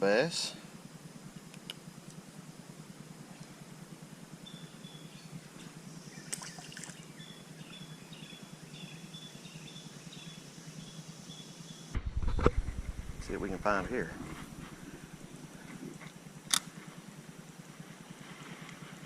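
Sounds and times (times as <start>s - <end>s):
creek water running: 6.2s - 7.1s.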